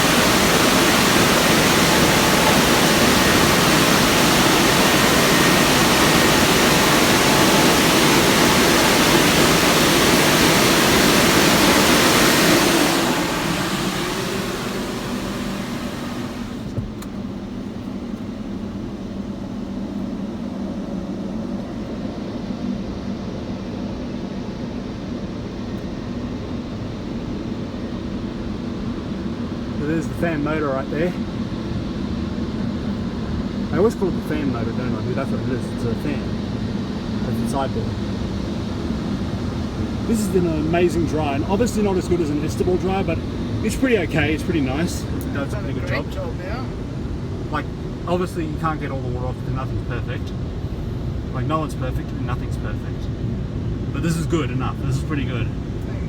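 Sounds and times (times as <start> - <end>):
water spray hissing over car: 0.0 - 16.6
dryer fans humming: 0.0 - 18.2, 38.7 - 49.6.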